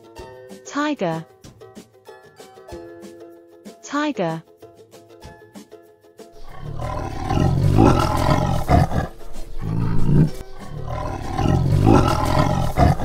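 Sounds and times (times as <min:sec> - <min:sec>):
tiger roaring: 0:06.4 - 0:13.0.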